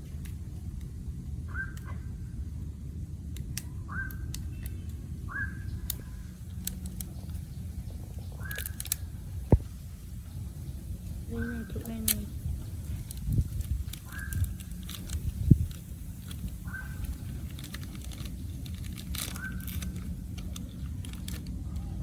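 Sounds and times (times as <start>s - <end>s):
bird calling: 1.5s - 2.3s, 3.7s - 9.6s, 10.2s - 13.1s, 13.8s - 22.0s
scattered clicks: 3.2s - 9.7s, 11.0s - 22.0s.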